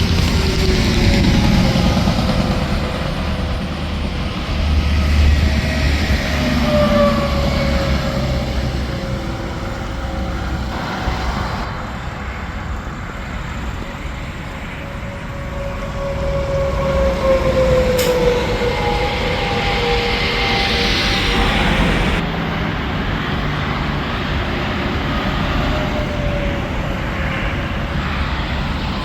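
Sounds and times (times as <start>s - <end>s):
highway traffic noise: 0.0s - 29.0s
trucks passing with tire whine: 0.0s - 29.0s.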